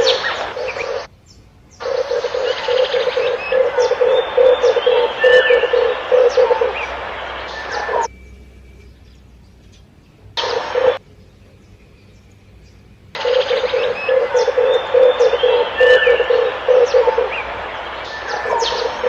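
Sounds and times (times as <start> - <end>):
dove cooing: 0.0 - 1.1, 1.8 - 8.1, 10.4 - 11.0, 13.2 - 19.0
background hiss: 0.0 - 19.0
birds chirping: 0.0 - 19.0.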